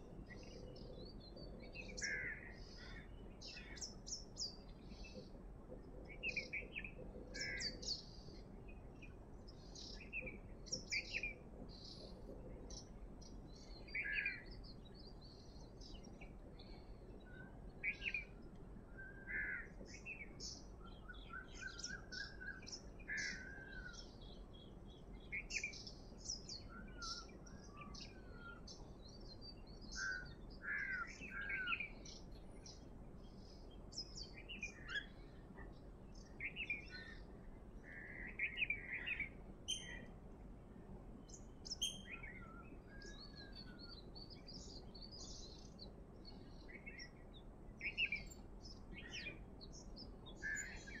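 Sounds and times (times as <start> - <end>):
faint background hiss: 0.0 - 51.0
birds chirping and whistling: 41.3 - 45.7, 47.8 - 51.0.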